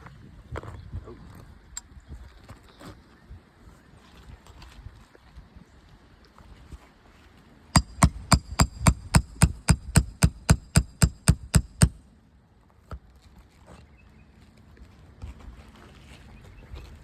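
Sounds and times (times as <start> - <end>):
hammer striking metal bar: 7.8 - 12.0.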